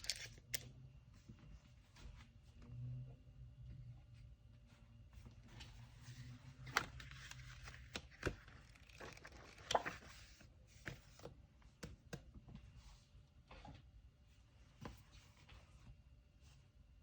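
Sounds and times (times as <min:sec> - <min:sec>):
paper rustling: 0:06.6 - 0:11.0.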